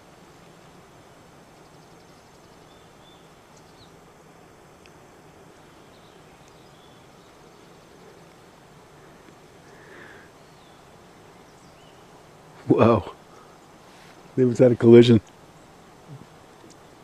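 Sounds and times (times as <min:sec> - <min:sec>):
steady hiss: 0:00.0 - 0:17.0
faint bird chirps: 0:01.0 - 0:04.1, 0:04.8 - 0:14.4.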